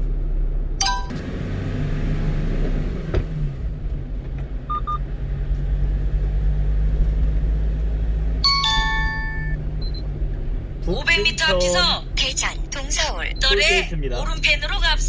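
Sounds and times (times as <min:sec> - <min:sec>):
truck engine and road drone: 0:00.0 - 0:15.0
short electronic beeps: 0:00.8 - 0:01.1, 0:04.7 - 0:05.0, 0:08.4 - 0:10.0.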